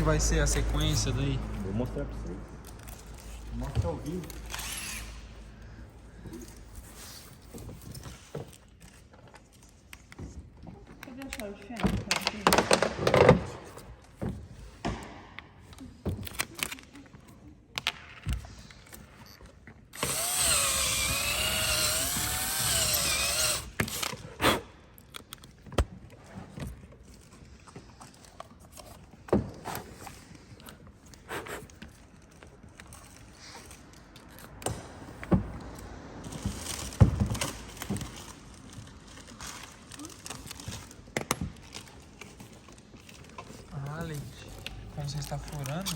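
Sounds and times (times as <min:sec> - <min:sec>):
power drill drilling: 0:20.0 - 0:24.2.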